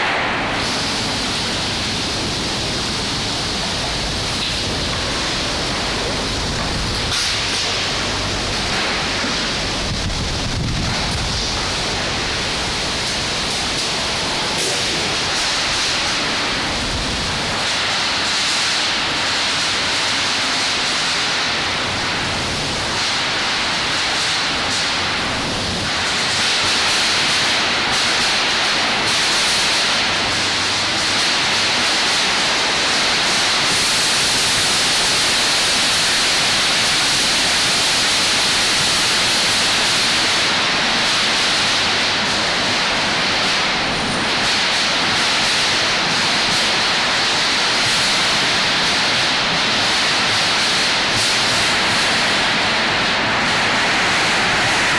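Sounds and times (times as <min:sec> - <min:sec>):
heavy rain: 0:00.0 - 0:54.9
howling wind: 0:00.4 - 0:17.6.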